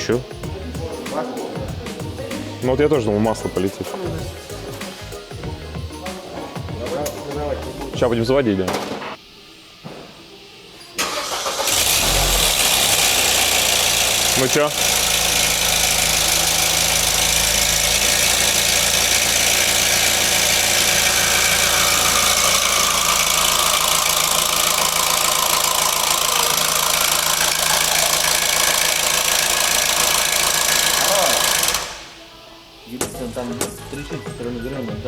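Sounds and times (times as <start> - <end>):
car engine idling with rattle: 11.3 - 31.9.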